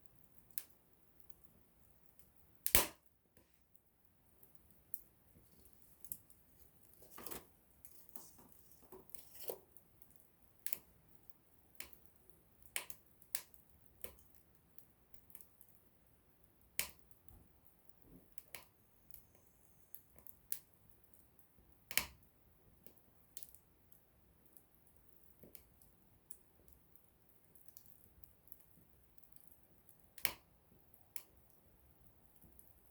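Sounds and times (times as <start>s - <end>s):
campfire crackling and popping: 2.1s - 3.1s, 9.0s - 19.2s, 20.0s - 32.9s.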